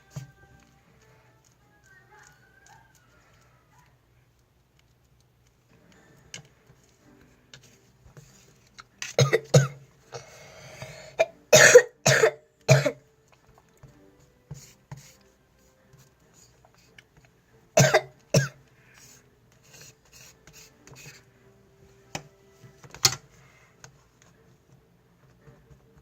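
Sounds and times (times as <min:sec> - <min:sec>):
person coughing: 0:09.2 - 0:09.8, 0:11.2 - 0:13.0, 0:17.8 - 0:18.6.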